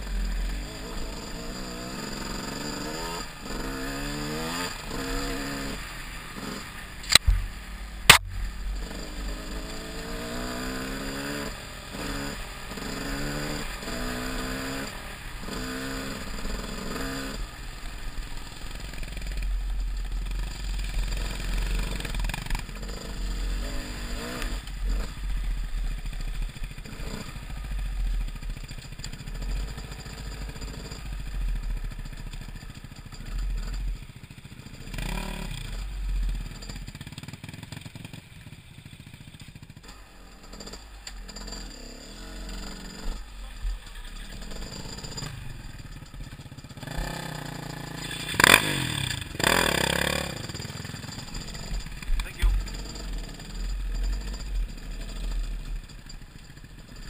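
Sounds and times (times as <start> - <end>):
dirt bike engine revving: 0.0 - 57.0
heavy low rumble: 7.2 - 9.4.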